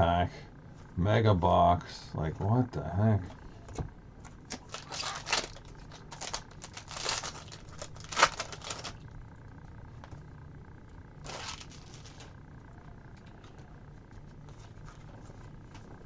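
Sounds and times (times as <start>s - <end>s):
foil wrappers crinkling and tearing: 4.4s - 9.0s, 11.2s - 12.4s.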